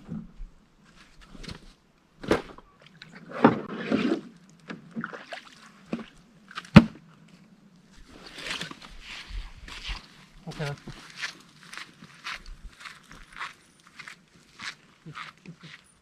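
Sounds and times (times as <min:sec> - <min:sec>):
water splashing: 0:04.9 - 0:06.7.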